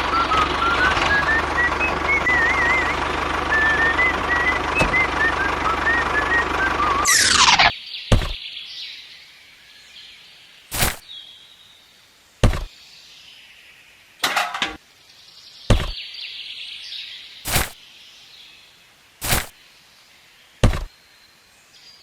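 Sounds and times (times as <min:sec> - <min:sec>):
sharp knocks: 0:08.1 - 0:08.4, 0:12.4 - 0:12.7, 0:15.7 - 0:16.0, 0:20.6 - 0:20.9.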